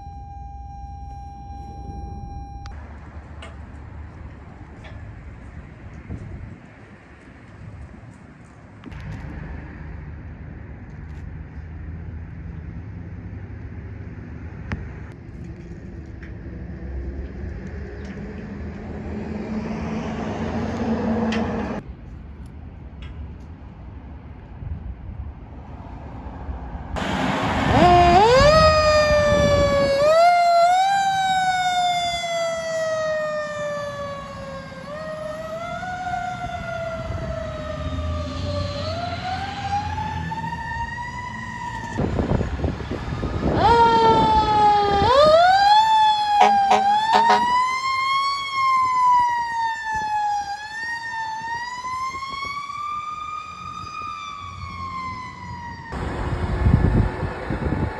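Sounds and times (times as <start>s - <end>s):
fire truck siren wailing: 0.0s - 2.8s, 27.0s - 57.9s
heavy vehicle engine: 8.8s - 22.3s, 25.6s - 30.1s, 46.4s - 47.6s, 56.0s - 57.9s.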